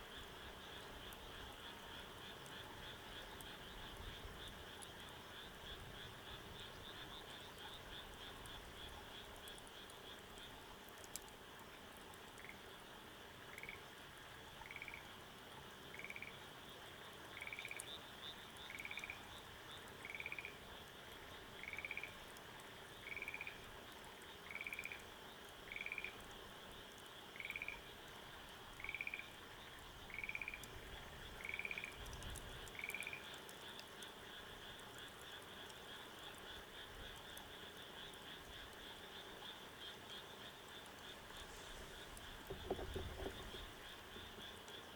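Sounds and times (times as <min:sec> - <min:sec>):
frog calling: 0:13.5 - 0:13.8, 0:14.6 - 0:15.1, 0:15.9 - 0:16.3, 0:17.3 - 0:19.4, 0:20.0 - 0:20.6, 0:21.6 - 0:22.2, 0:23.0 - 0:23.6, 0:24.5 - 0:25.0, 0:25.7 - 0:26.2, 0:27.4 - 0:27.9, 0:28.8 - 0:29.4, 0:30.1 - 0:30.7, 0:31.3 - 0:32.0, 0:32.6 - 0:33.3, 0:40.2 - 0:44.9.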